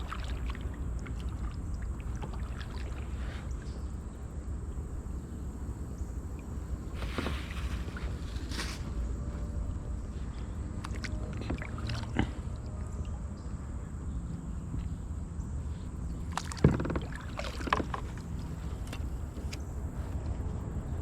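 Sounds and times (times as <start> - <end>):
paddle knocking against hull: 16.2 - 19.6.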